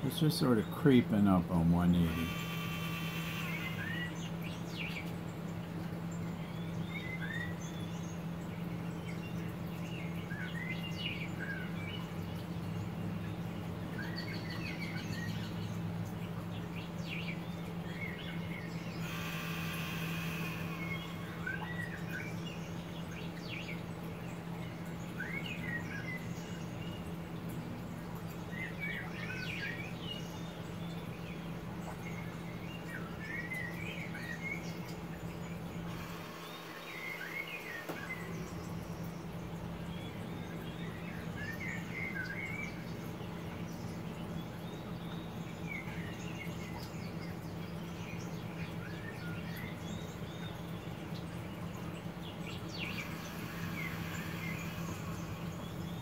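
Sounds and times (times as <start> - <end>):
songbird warbling: 0.0 - 5.6, 16.6 - 27.0, 31.9 - 56.0
steady low hum: 0.0 - 56.0.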